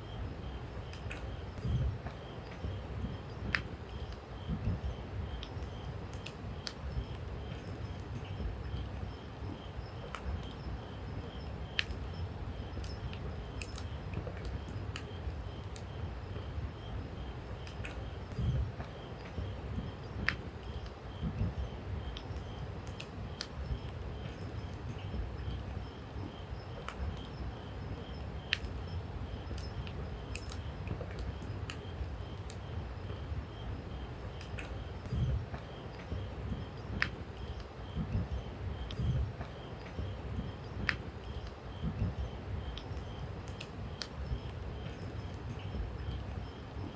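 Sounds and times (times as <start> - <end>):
low steady hiss: 0.0 - 46.9
low steady rumble: 0.0 - 46.9
campfire crackling and popping: 11.6 - 16.0, 17.1 - 32.7, 33.8 - 46.9.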